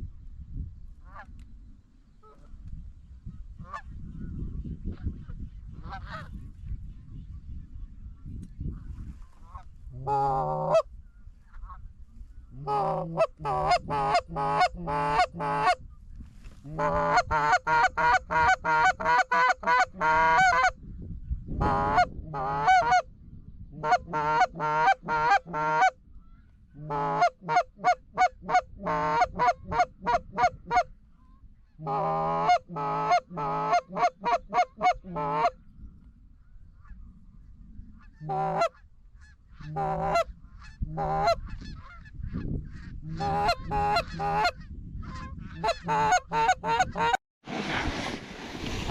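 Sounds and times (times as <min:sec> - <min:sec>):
geese honking: 0:09.4 - 0:10.9.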